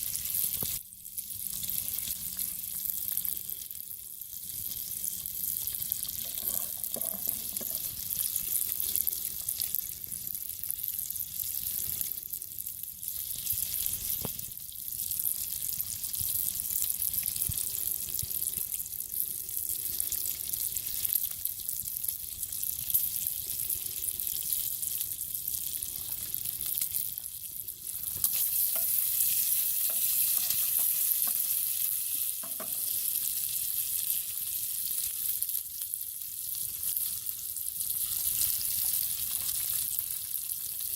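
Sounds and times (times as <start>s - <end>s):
food sizzling in a pan: 0.0s - 40.9s.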